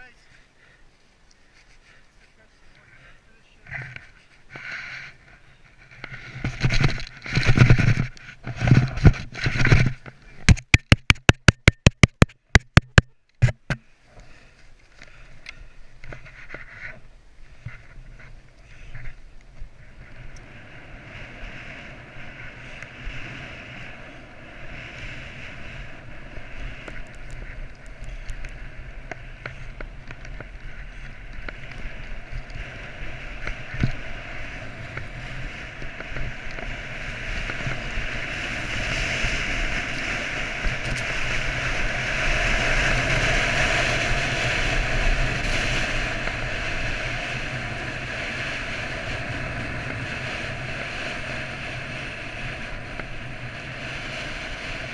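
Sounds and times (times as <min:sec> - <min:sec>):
wind rushing over microphone: 0:03.6 - 0:12.6, 0:16.0 - 0:54.9
skis running through powder snow: 0:17.5 - 0:54.9.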